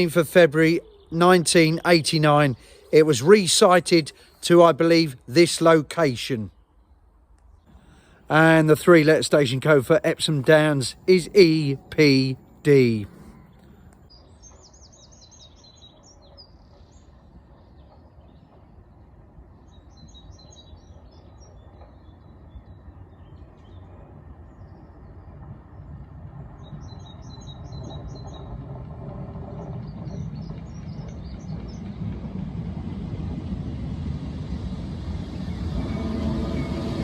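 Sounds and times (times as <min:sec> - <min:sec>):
small birds chirping: 0:00.0 - 0:03.0, 0:09.9 - 0:28.8, 0:29.4 - 0:33.9
train rumble: 0:00.0 - 0:06.5, 0:07.1 - 0:37.0.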